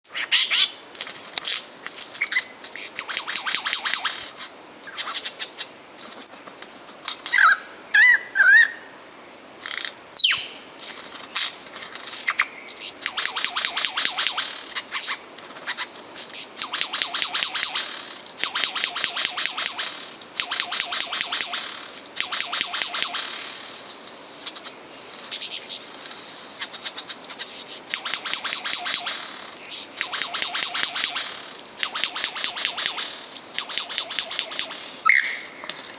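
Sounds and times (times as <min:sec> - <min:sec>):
lyrebird mimicry song: 0:07.2 - 0:08.9, 0:09.6 - 0:10.6, 0:26.6 - 0:35.7.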